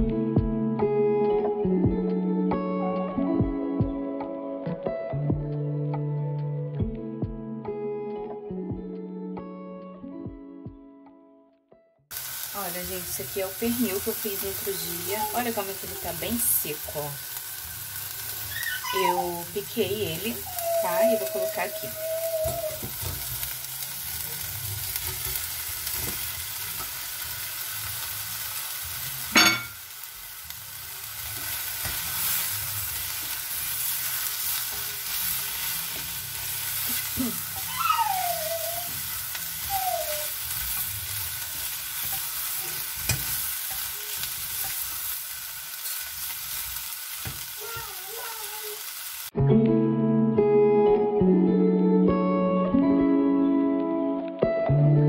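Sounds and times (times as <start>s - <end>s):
meat sizzling in hot oil: 12.1s - 49.4s.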